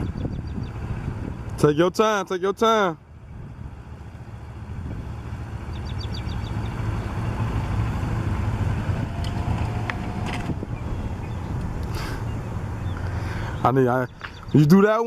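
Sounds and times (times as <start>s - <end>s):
motorcycle engine at low revs: 0.0s - 2.0s, 3.0s - 14.6s.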